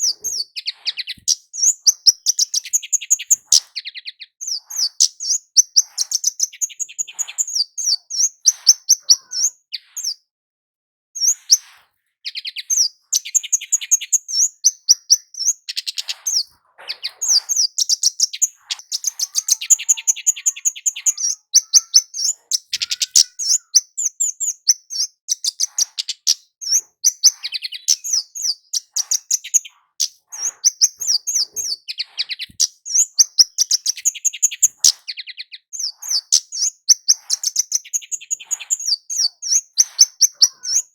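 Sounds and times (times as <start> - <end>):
bird ticking chirps: 0.0 - 10.2, 11.2 - 40.9.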